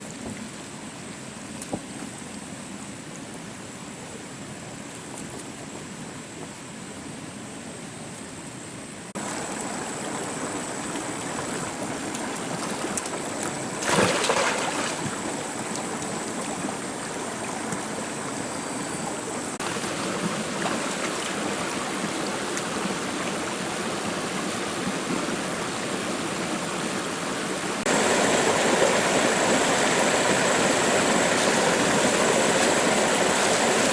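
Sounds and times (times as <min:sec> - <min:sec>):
stream water rushing: 0:09.2 - 0:33.9.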